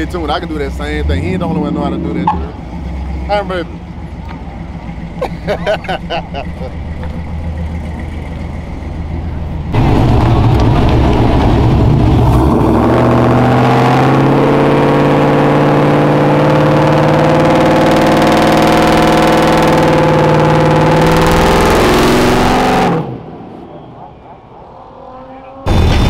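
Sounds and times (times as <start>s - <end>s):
vehicle engine idling and revving: 0.0s - 26.0s.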